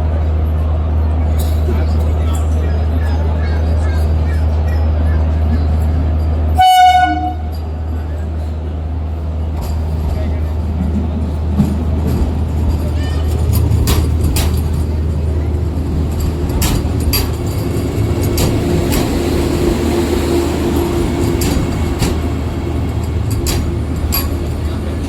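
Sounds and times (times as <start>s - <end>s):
train rumbling: 0.0s - 25.0s
wheels clicking over rail joints: 9.5s - 25.0s.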